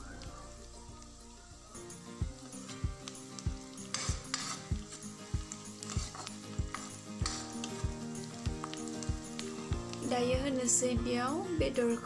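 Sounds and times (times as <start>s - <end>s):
onions sizzling in hot oil: 0.0s - 12.0s
metal spatula scraping pan: 3.8s - 4.8s, 5.8s - 7.7s.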